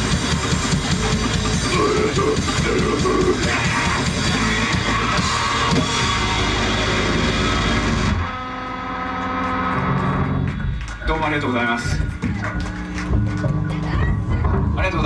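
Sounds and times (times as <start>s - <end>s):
heavy rock band playing: 0.0s - 10.8s.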